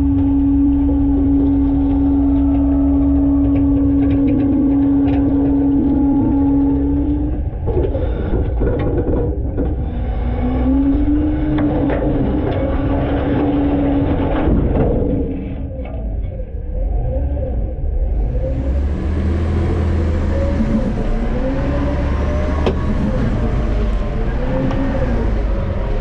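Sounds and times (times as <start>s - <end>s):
rattling and clatter: 0.0s - 16.7s
steady whine: 0.0s - 26.0s
truck engine rumble: 0.0s - 26.0s.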